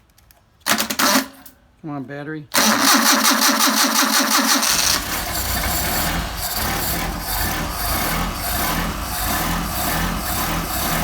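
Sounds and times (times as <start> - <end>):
starter cranking: 2.6 - 11.0
car engine running: 4.6 - 11.0.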